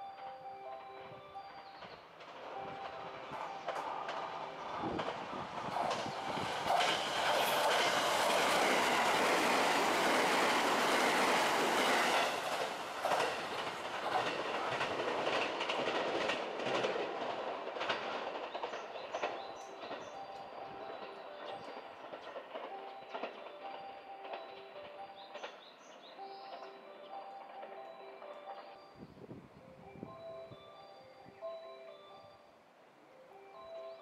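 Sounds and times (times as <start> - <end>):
wheels clacking over rail joints: 0.0 - 29.0
train wheels rushing on rails: 0.0 - 32.4.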